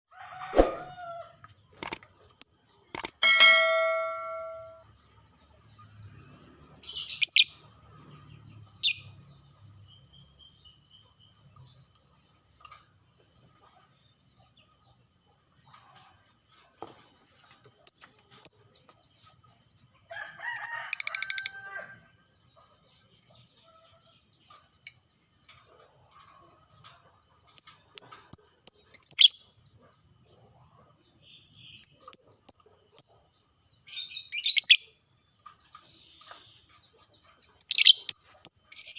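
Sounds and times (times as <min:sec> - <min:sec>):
harsh bird screeches: 0:00.5 - 0:00.9
lovebird chirping: 0:37.5 - 0:38.9.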